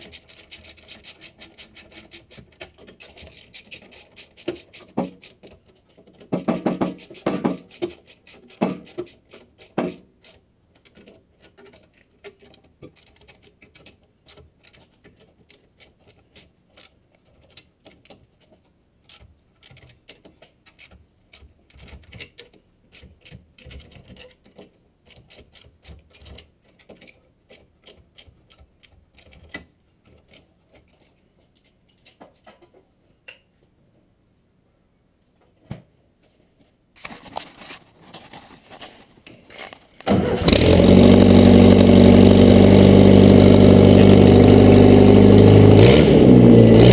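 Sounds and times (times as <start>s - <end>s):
faint clicks and ticks: 0.0s - 33.5s
car engine cranking and running: 40.0s - 46.9s.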